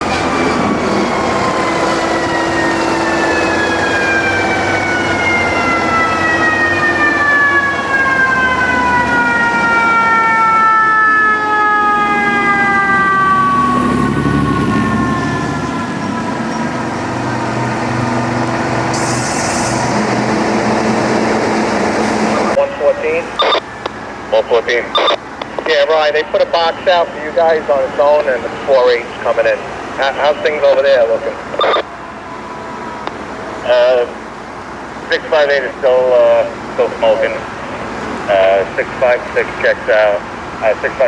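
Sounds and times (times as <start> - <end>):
mechanical siren wailing: 0.0 - 27.0
truck engine rumble: 0.0 - 41.0
brief hiss: 18.9 - 19.9.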